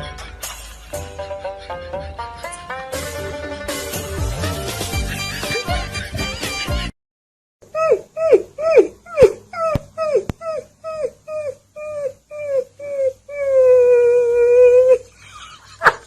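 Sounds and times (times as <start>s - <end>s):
dog yipping: 7.8s - 15.0s
dog howling: 7.8s - 15.1s.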